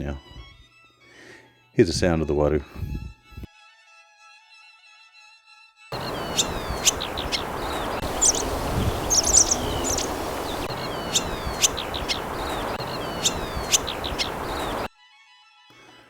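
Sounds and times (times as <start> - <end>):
background hiss: 6.0 - 14.9
swallows twittering: 6.0 - 14.9.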